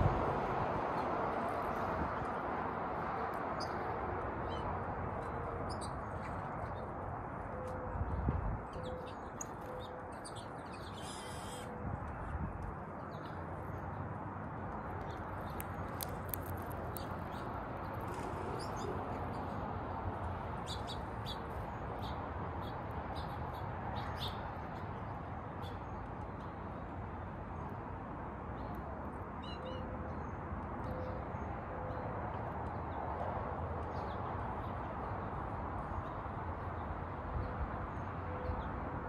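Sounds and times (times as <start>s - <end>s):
low outdoor background rush: 0.0s - 39.0s
birds chirping: 8.7s - 11.7s, 15.0s - 19.6s.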